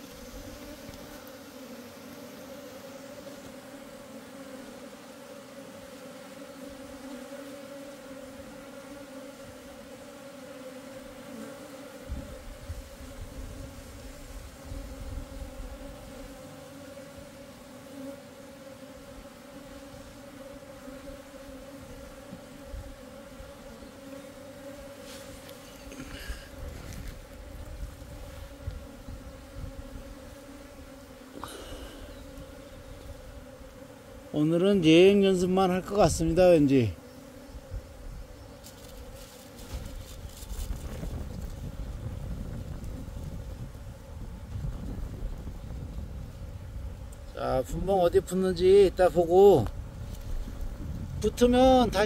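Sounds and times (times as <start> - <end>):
bees humming: 0.0 - 52.0
wind rumbling on microphone: 12.1 - 16.1, 26.2 - 30.3, 39.7 - 47.9, 49.6 - 52.0.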